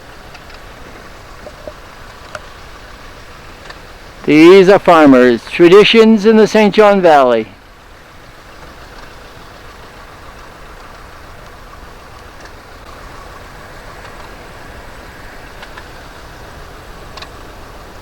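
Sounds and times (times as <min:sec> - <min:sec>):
tractor engines idling: 0:00.0 - 0:18.0.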